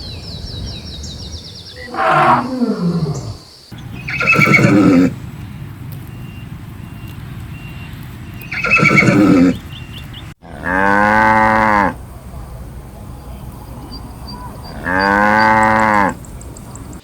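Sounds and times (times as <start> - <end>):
horse whinnying: 1.9 - 3.4, 4.0 - 5.2, 8.5 - 9.6.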